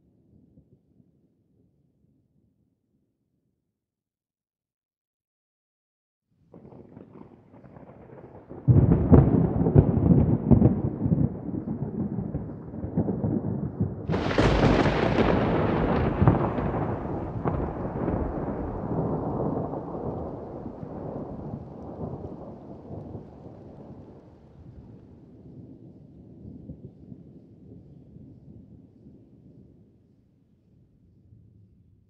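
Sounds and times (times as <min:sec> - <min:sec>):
thunder rumbling and cracking: 0:06.5 - 0:26.9.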